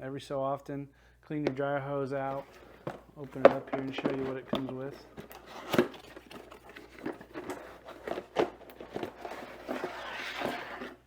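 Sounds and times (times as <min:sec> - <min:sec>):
packaging crinkling: 0:02.2 - 0:11.0.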